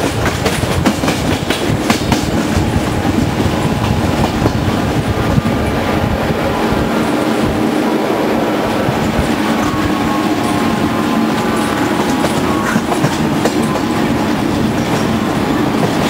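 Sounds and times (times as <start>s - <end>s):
train wheels clicking over rail joints: 0.0s - 5.1s, 8.8s - 16.0s
train rolling noise with low hum: 0.0s - 16.0s.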